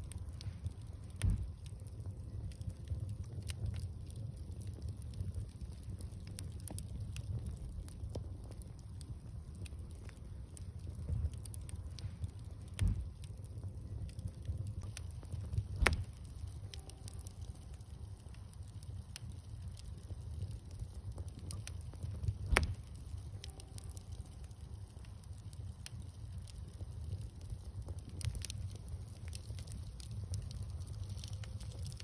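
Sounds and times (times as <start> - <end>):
bonfire crackling pops: 0.0 - 32.0
low steady rumble: 0.0 - 32.0.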